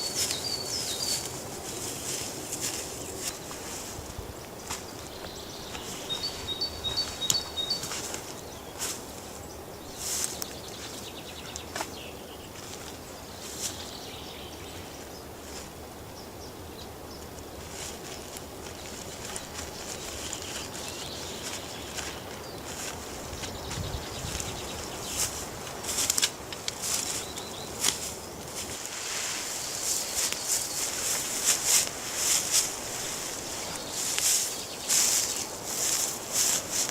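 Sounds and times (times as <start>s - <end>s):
faint outdoor hush: 0.0s - 36.9s
clicks and rustles: 17.4s - 29.0s.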